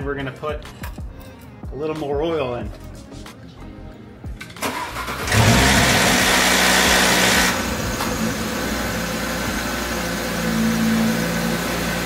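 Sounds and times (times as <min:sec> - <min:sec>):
car engine idling: 0:04.6 - 0:12.0.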